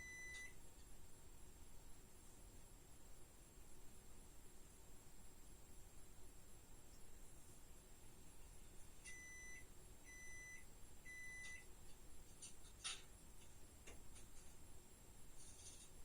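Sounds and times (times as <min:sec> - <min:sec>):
electronic beeps: 0:09.1 - 0:11.6.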